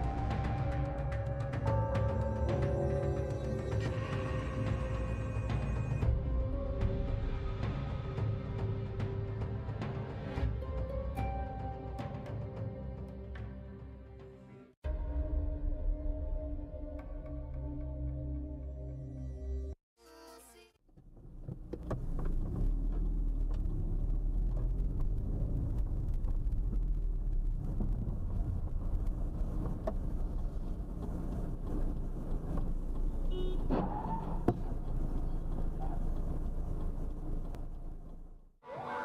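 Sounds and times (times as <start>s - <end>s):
car engine and road rumble: 20.9s - 38.6s.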